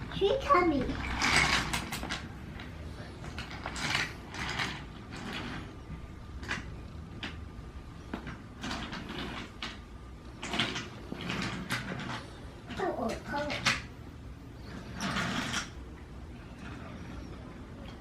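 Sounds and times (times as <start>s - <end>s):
wooden toy train clicks and knocks: 0.9s - 5.6s, 10.4s - 13.9s.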